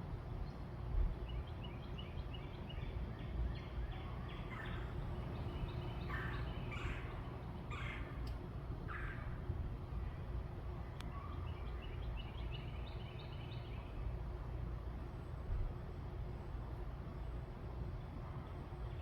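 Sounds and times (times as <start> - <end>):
birds chirping: 0.5 - 9.4
harsh bird calls: 3.6 - 8.2.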